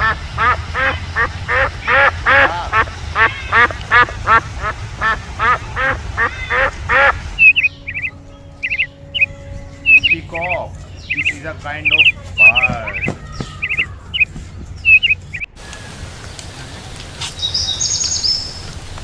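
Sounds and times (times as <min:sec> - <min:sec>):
duck quacking: 0:00.0 - 0:14.2
short high chirping calls: 0:06.9 - 0:15.5, 0:17.2 - 0:18.6.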